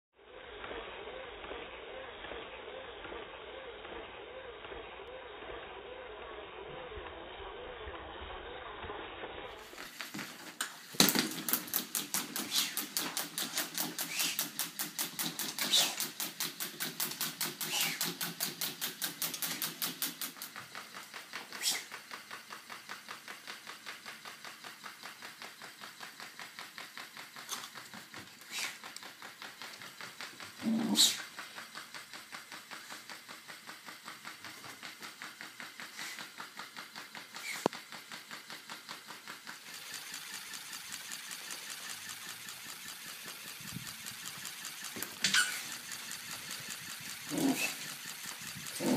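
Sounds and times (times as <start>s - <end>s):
low hum: 0.2s - 9.8s
mechanical toy bird clicking: 11.4s - 48.9s.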